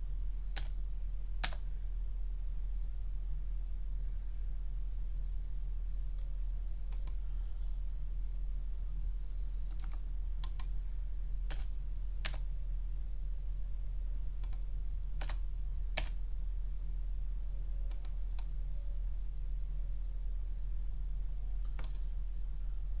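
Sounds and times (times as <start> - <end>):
steady low hum: 0.0 - 23.0
computer keys and mouse clicks: 0.5 - 0.8, 1.4 - 1.6, 6.9 - 7.2, 9.7 - 10.8, 11.5 - 12.4, 14.4 - 15.4, 16.0 - 16.2, 17.9 - 18.6, 21.6 - 22.1.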